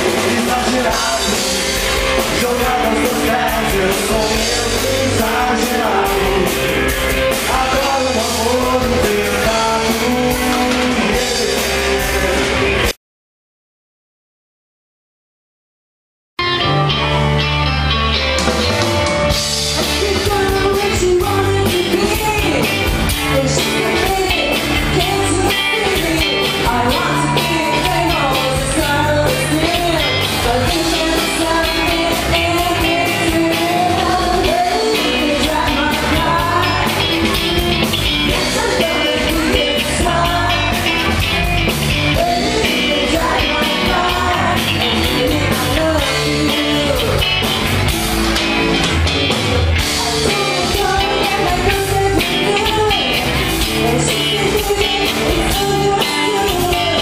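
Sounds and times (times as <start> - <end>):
person singing: 0.0 - 12.9, 18.9 - 47.6, 49.8 - 57.0
live rock band: 0.0 - 13.0, 16.4 - 57.0.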